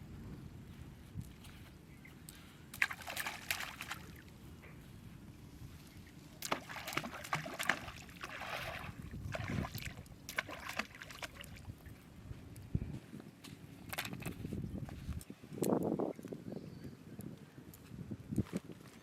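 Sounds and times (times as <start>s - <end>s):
water sloshing and splashing: 2.7s - 4.4s, 5.9s - 12.0s.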